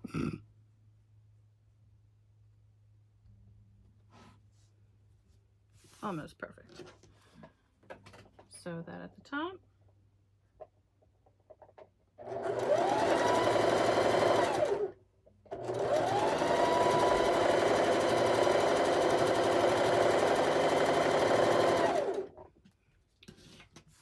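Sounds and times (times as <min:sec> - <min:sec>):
sewing machine stitching: 0:12.2 - 0:22.5.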